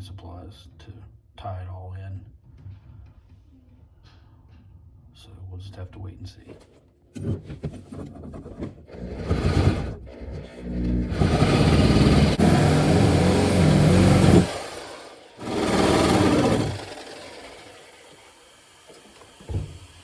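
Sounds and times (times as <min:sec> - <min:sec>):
small motor running: 0:09.0 - 0:20.0.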